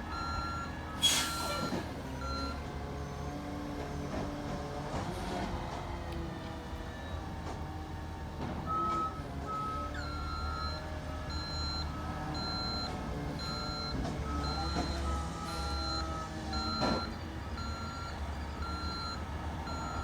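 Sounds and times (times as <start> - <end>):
truck diesel engine running: 5.6 - 20.0.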